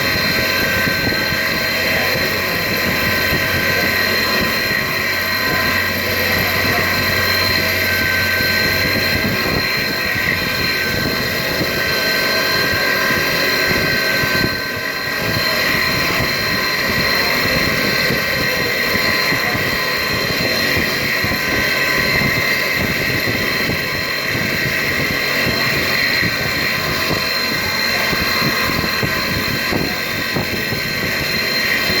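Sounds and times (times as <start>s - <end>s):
milling machine spindle whine: 0.0s - 32.0s.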